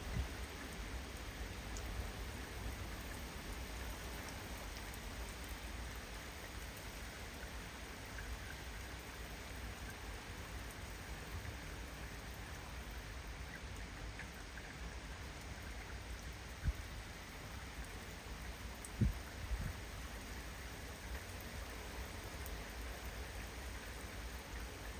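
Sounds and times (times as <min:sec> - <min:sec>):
wind rumble on microphone: 0:00.0 - 0:00.6, 0:16.5 - 0:17.0, 0:18.8 - 0:20.0
steady rain falling: 0:00.0 - 0:24.9.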